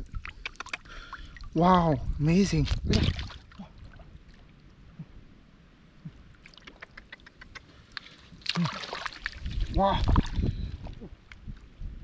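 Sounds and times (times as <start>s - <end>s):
shallow water sloshing and splashing: 2.7s - 4.7s, 8.0s - 11.7s.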